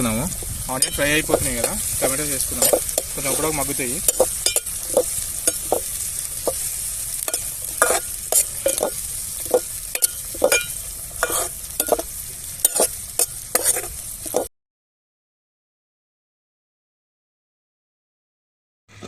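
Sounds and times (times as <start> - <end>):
vegetables sizzling in oil: 0.0 - 14.5
spoon scraping pan: 0.3 - 14.5.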